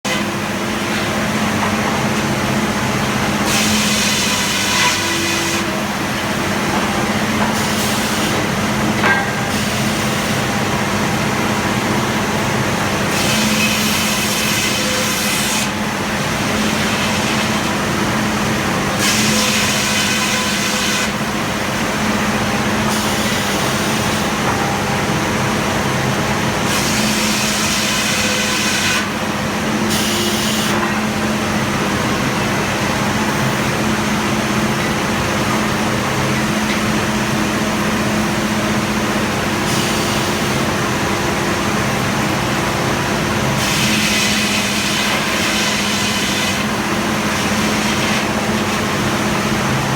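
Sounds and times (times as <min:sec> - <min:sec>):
sawmill running with low hum: 0:00.0 - 0:49.9
saw blade cutting log: 0:03.4 - 0:05.8, 0:13.0 - 0:17.8, 0:19.0 - 0:21.2, 0:22.9 - 0:24.4, 0:26.6 - 0:29.2, 0:29.9 - 0:30.8, 0:43.4 - 0:49.0.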